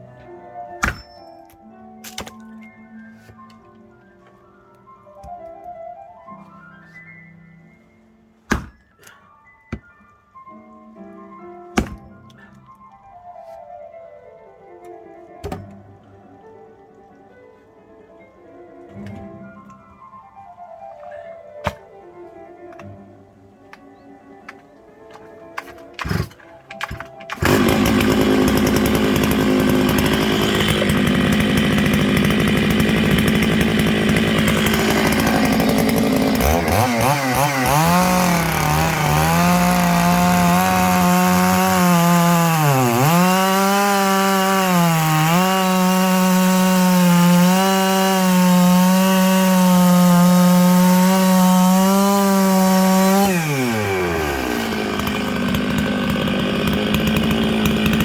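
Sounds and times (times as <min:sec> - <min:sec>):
chainsaw cutting logs: 0:08.5 - 0:09.0, 0:11.8 - 0:12.7, 0:15.4 - 0:15.8, 0:21.1 - 0:21.9, 0:25.1 - 0:58.0.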